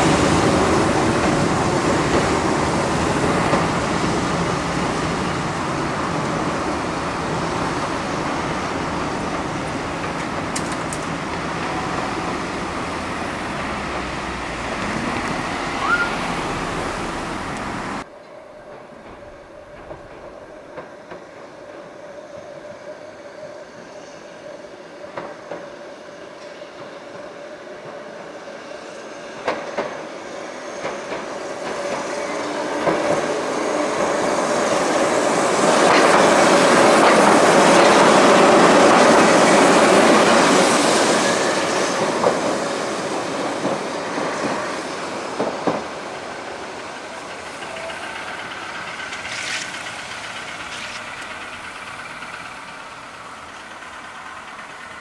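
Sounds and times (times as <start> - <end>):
electric train running: 0.0 - 55.0
wheels clicking over rail joints: 0.3 - 21.2, 45.3 - 55.0.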